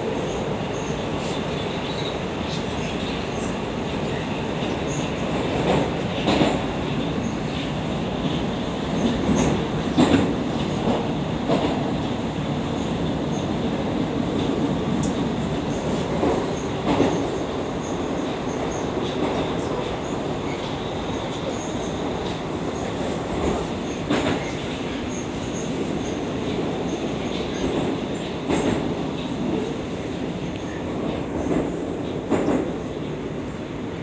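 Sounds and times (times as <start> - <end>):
train rumbling inside car: 0.0 - 34.0.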